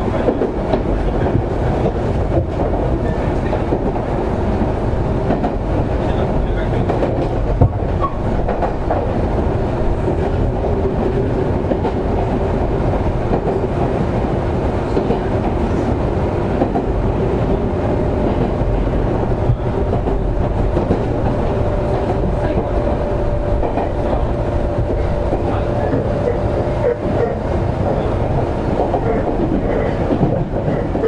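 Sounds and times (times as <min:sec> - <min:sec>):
train wheels rumbling on rails: 0:00.0 - 0:31.0
rail-joint clicks: 0:05.2 - 0:09.2, 0:14.9 - 0:31.0.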